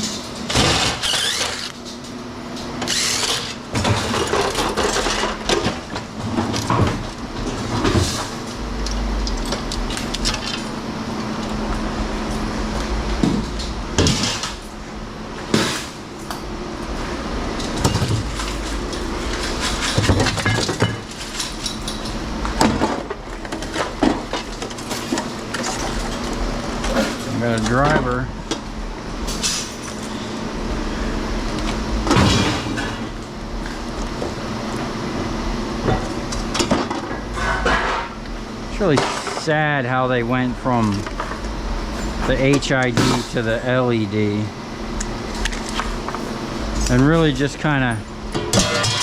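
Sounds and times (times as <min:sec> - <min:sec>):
metal clanks and rattles: 0:00.0 - 0:10.8, 0:17.6 - 0:30.2, 0:35.8 - 0:39.7, 0:45.4 - 0:49.0
steady low hum: 0:00.0 - 0:49.0.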